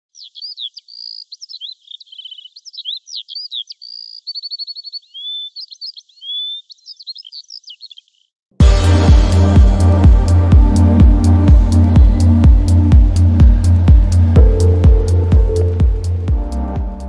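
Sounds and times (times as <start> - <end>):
songbird singing: 0.0 - 8.4, 11.6 - 17.0
electronic music with heavy bass: 8.6 - 17.0.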